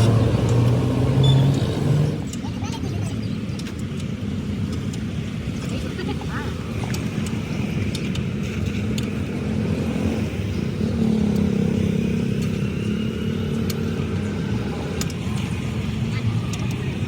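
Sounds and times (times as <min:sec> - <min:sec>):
tractor engine running: 0:00.0 - 0:02.4.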